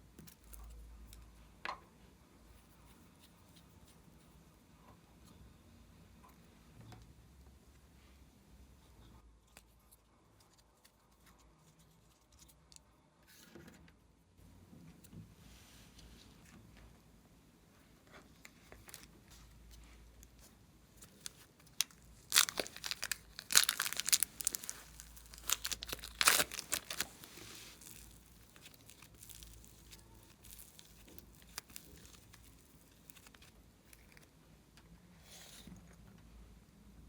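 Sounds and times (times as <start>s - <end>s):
slime squished by hand: 21.1s - 33.5s.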